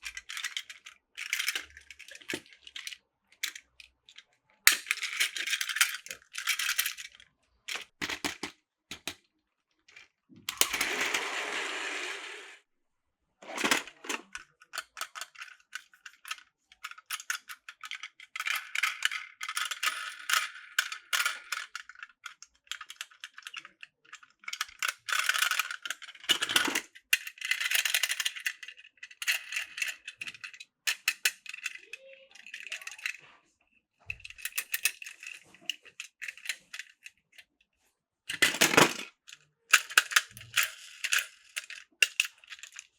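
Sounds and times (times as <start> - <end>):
plastic toy track pieces clicking: 0.0 - 9.2, 9.9 - 12.6, 13.5 - 33.2, 34.1 - 37.4, 38.3 - 42.9.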